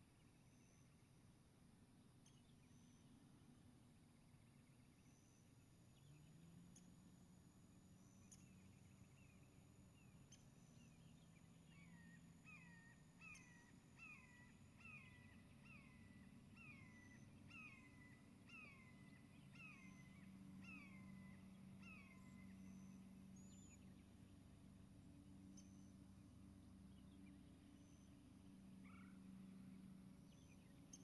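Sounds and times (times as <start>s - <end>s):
low background rumble: 0.0s - 31.0s
faint bird calling: 11.6s - 23.9s, 27.6s - 31.0s.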